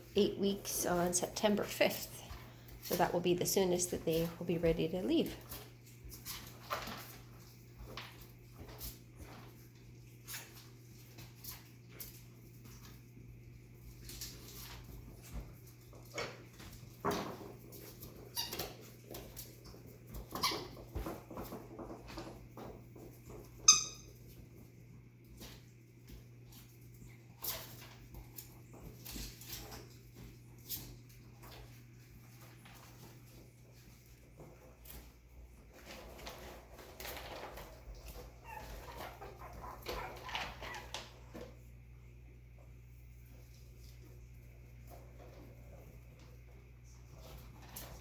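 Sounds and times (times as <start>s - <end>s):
puppies scuffling: 0.0s - 48.0s
puppy squeaks and yips: 23.7s - 24.0s, 38.4s - 41.0s.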